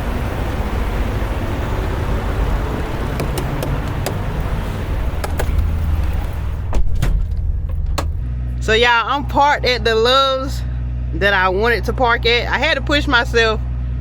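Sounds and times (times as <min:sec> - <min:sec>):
road noise: 0:00.0 - 0:14.0
truck engine hum: 0:00.0 - 0:14.0
sharp clicks: 0:03.1 - 0:06.4.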